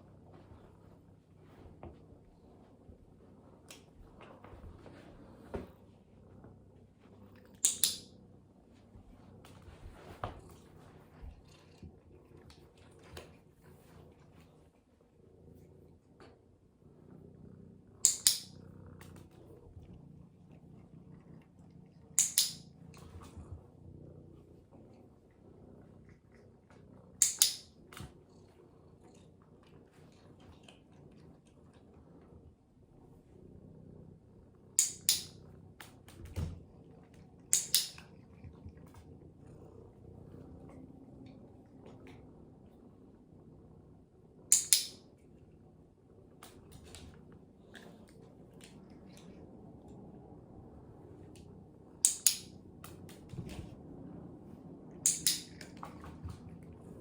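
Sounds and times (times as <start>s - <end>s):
sharp clicks: 7.6s - 8.1s, 18.1s - 18.5s, 22.2s - 22.6s, 27.2s - 27.7s, 34.8s - 35.4s, 37.5s - 38.0s, 44.5s - 45.0s, 52.1s - 53.0s, 55.1s - 55.8s.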